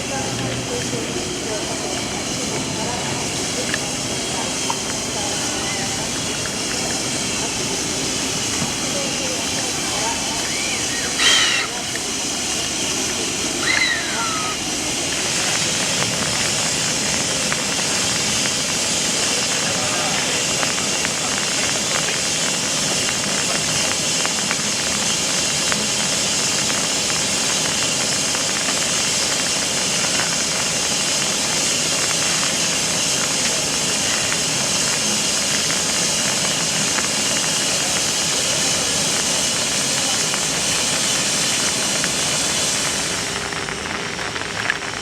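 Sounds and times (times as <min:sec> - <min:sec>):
steam locomotive hissing steam: 0:00.0 - 0:45.0.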